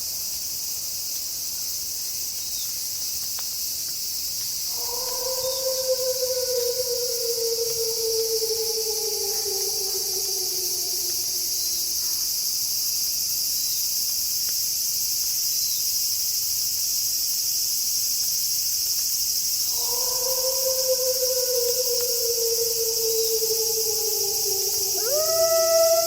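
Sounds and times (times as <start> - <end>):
crickets chirping: 0.0 - 26.0
wolf howling: 4.7 - 12.2, 19.7 - 26.0.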